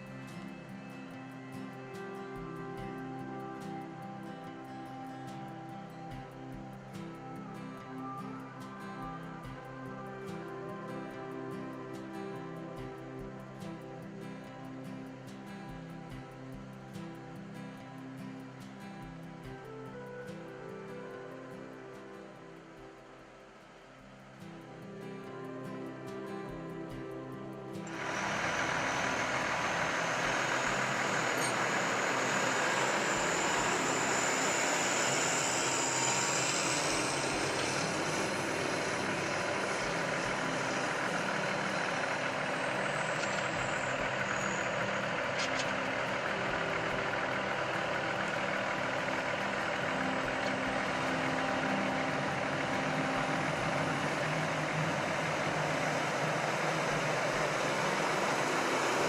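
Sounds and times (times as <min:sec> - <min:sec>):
high whine: 0:00.0 - 0:59.0
tractor diesel engine running: 0:27.8 - 0:59.0.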